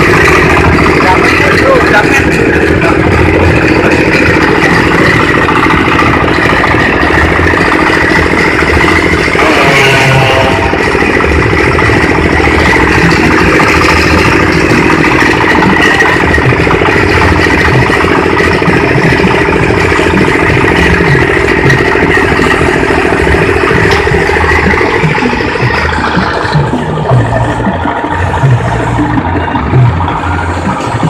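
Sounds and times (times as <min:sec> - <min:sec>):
feed chopper machine droning: 0:00.0 - 0:31.0
rattling and clatter: 0:00.0 - 0:31.0.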